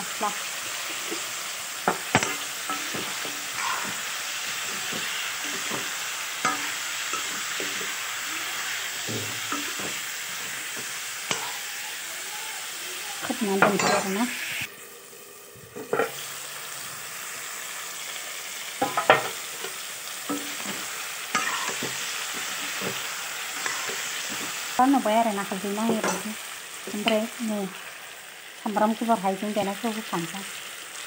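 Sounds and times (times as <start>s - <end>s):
meat sizzling in a wok: 0.0s - 31.0s
metal spatula scraping a pan: 0.6s - 11.7s, 18.8s - 24.8s.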